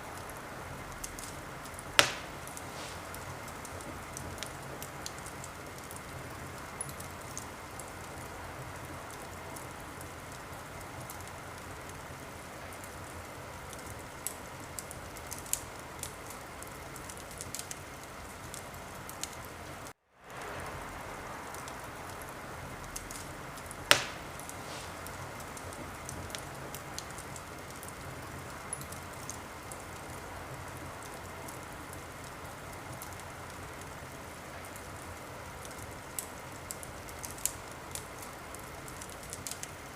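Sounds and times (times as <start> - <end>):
wood fire crackling: 0.0 - 39.9
loud sharp pop from fire: 1.0 - 5.2, 23.0 - 27.2.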